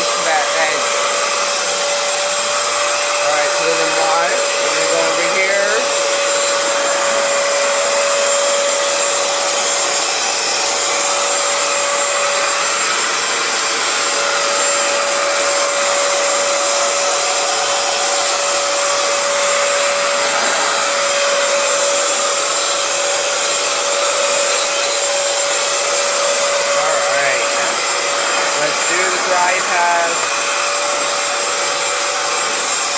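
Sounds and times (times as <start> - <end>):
motor whine: 0.0 - 32.9
suction air rushing: 18.6 - 31.2.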